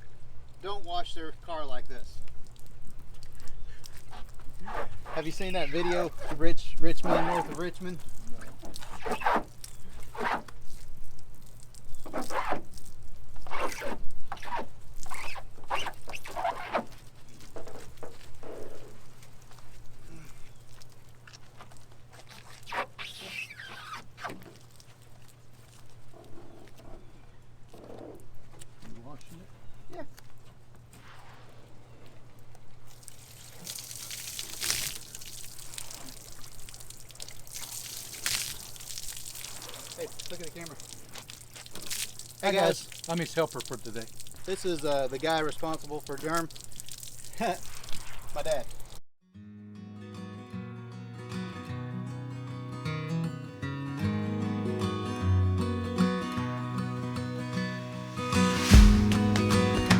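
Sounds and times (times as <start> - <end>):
water spraying and splashing: 2.2 - 25.9, 32.8 - 49.0
squeaky rubbing on truck body: 4.0 - 7.6, 8.4 - 10.6, 11.9 - 12.8, 13.4 - 19.1, 22.2 - 24.8.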